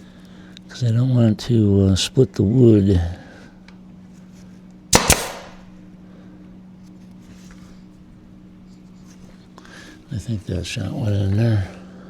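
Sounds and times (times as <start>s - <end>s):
nail gun firing: 5.0s - 5.7s.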